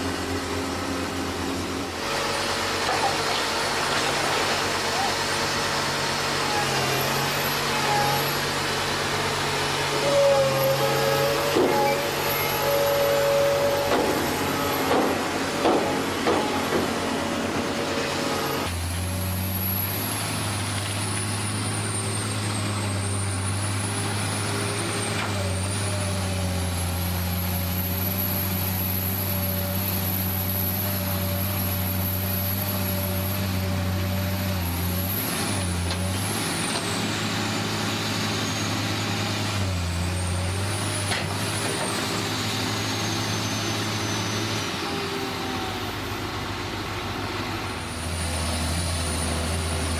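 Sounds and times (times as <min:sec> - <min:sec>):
low engine-like drone: 0:00.0 - 0:29.7.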